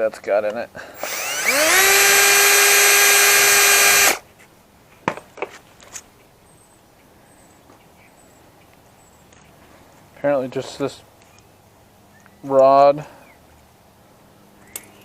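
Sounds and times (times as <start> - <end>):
power drill whining: 1.0 - 4.2.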